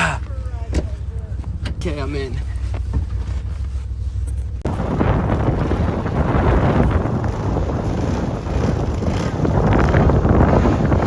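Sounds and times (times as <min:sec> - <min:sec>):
steady low rumble: 0:00.0 - 0:11.0
wind buffeting microphone: 0:04.6 - 0:11.0.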